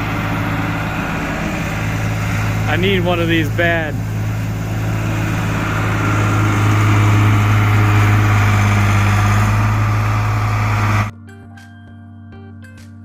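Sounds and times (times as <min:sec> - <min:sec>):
heavy vehicle engine droning: 0:00.0 - 0:11.1
quiet music: 0:11.1 - 0:13.0.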